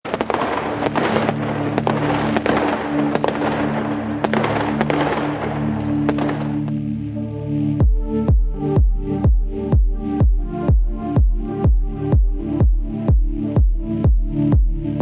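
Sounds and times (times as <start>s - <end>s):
fireworks bangs: 0.0s - 6.7s
fireworks crackling: 0.0s - 6.8s
held synth chord: 0.1s - 15.0s.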